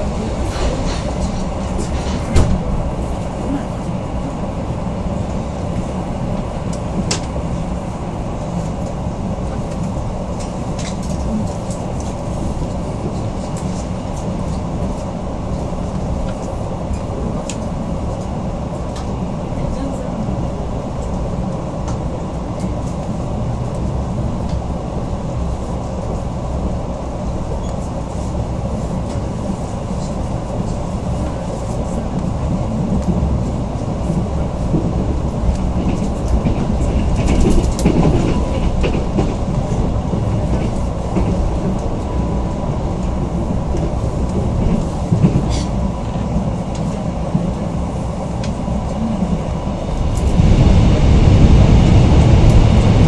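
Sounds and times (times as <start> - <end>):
train rattling and clicking: 0.0 - 53.0
train wheels rumbling on track: 0.0 - 53.0.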